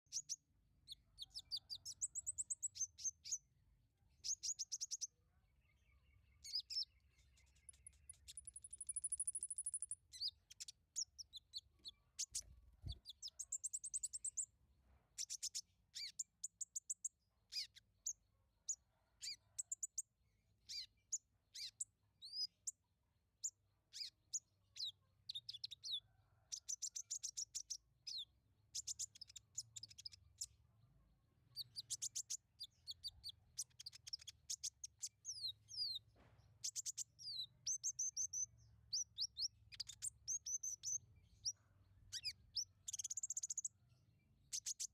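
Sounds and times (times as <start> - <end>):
songbird chirping and trilling: 0.0 - 44.9.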